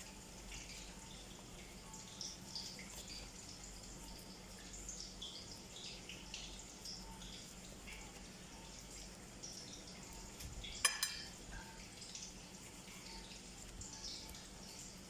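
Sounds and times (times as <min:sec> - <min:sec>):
metallic clink of cookware: 0:10.8 - 0:11.8.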